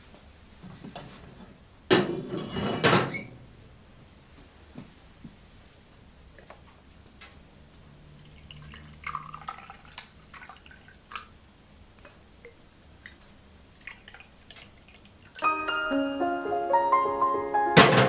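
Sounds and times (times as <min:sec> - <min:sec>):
piano music: 0:15.4 - 0:18.0.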